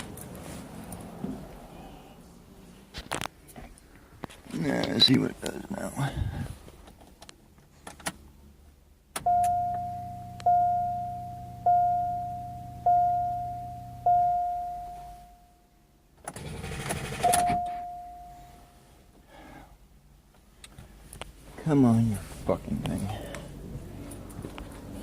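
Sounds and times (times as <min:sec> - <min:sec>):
low steady hum: 0:08.5 - 0:16.2, 0:17.3 - 0:25.0
car warning chime dinging: 0:09.2 - 0:15.6, 0:17.2 - 0:18.8
engine starter cranking: 0:16.2 - 0:17.6.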